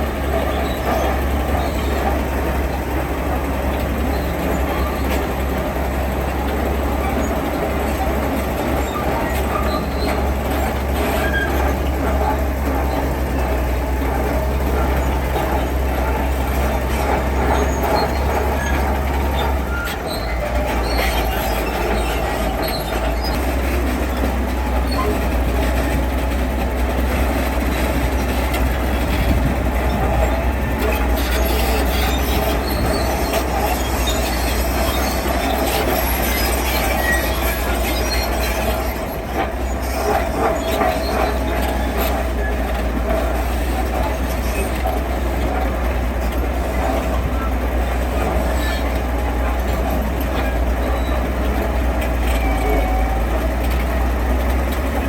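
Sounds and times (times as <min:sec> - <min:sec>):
diesel engine drone: 0:00.0 - 0:55.0.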